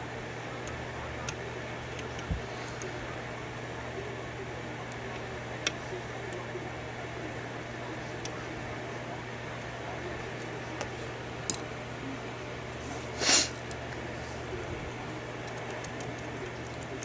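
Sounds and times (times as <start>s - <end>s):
short hiss: 13.2s - 13.6s.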